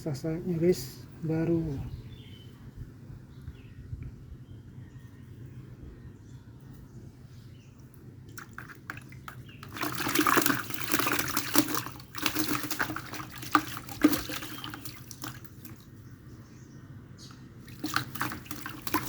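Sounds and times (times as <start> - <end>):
water dripping: 8.3 - 15.9, 17.6 - 19.0
water splashing: 8.3 - 15.9, 17.6 - 19.0.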